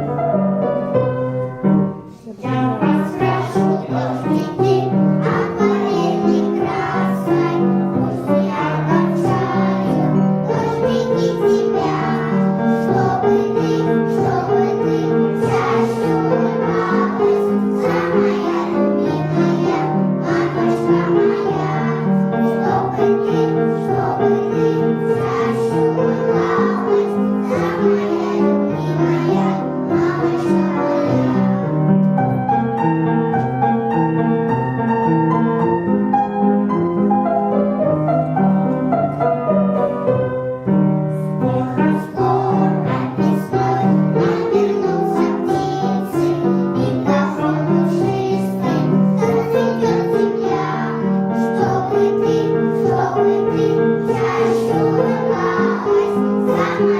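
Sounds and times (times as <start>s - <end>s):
piano accompaniment: 0.0s - 56.9s
children singing: 2.4s - 32.0s, 41.1s - 56.9s.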